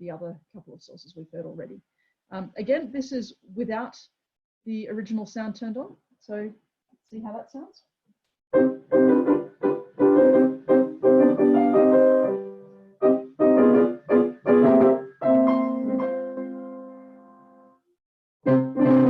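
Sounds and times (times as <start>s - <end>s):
piano playing: 8.6s - 17.8s, 18.4s - 19.0s.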